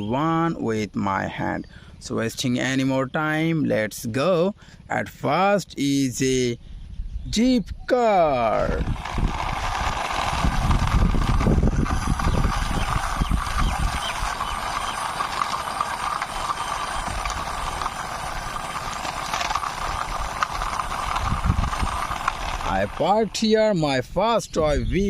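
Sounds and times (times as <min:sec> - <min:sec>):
toy car wheels rolling along wall: 0:08.1 - 0:24.2.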